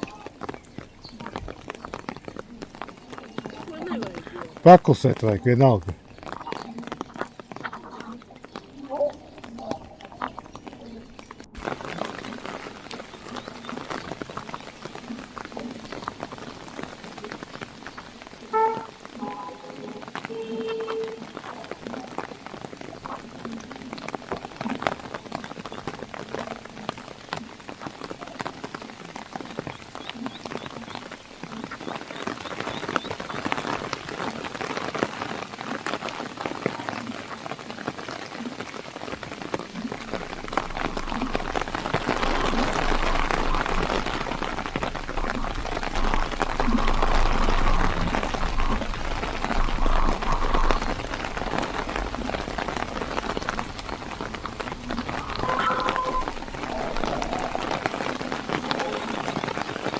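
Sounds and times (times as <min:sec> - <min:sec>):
heavy rain pattering: 0:00.0 - 0:59.9
low rumble: 0:40.0 - 0:58.8.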